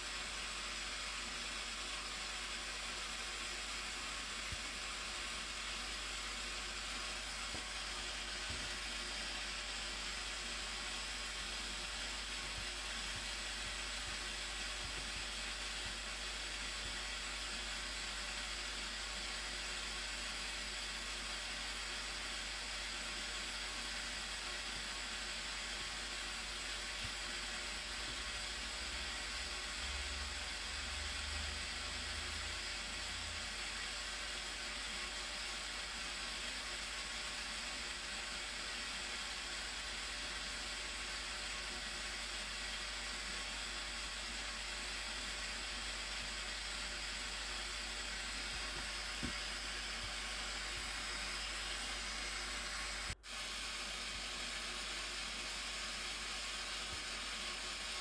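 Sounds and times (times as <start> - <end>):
steady hissing noise: 0.0 - 58.0.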